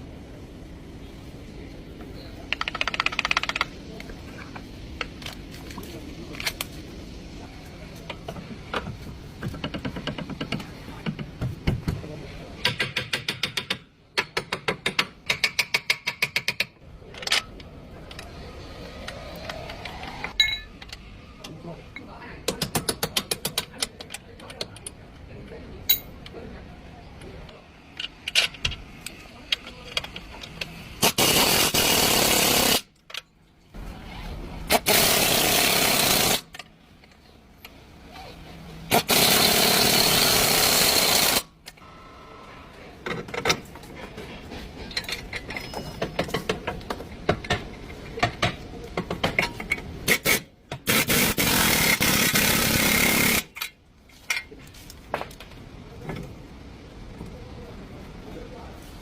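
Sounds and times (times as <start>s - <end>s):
metal tools clinking: 20.4s - 20.9s, 25.9s - 26.2s, 44.8s - 46.5s
impact wrench running: 31.0s - 32.9s, 34.7s - 36.5s, 38.9s - 41.5s, 50.1s - 53.5s.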